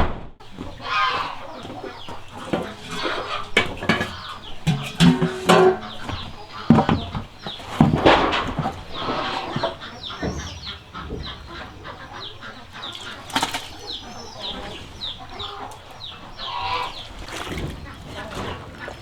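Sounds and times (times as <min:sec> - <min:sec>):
sharp knocks: 0:00.4 - 0:08.8
chicks peeping: 0:00.4 - 0:19.0.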